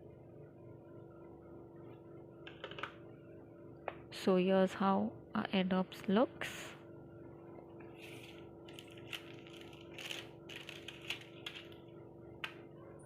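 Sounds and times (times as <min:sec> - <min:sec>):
packaging rustles: 0:08.0 - 0:11.8.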